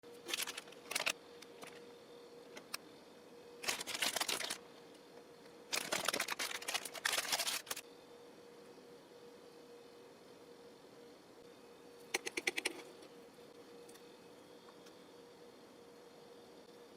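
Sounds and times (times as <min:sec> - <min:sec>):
faint steady hum: 0:00.0 - 0:16.9
plastic packaging crinkling: 0:00.2 - 0:01.1, 0:03.6 - 0:04.6, 0:05.7 - 0:07.8.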